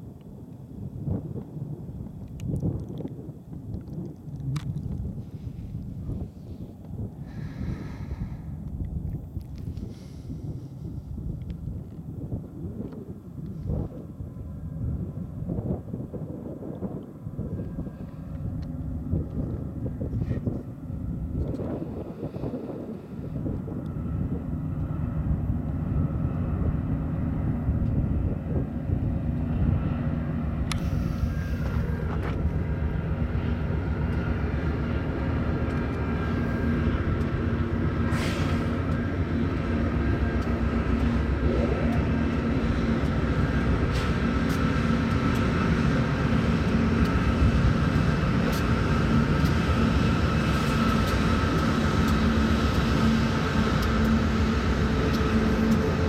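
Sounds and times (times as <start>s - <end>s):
locomotive engine rumble: 0.4s - 56.0s
train wheels clicking on rails: 29.2s - 56.0s.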